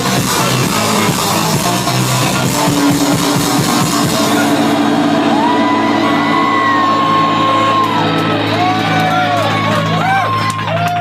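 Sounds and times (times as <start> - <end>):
electronic dance music: 0.0 - 10.8
held high tone: 2.0 - 10.4.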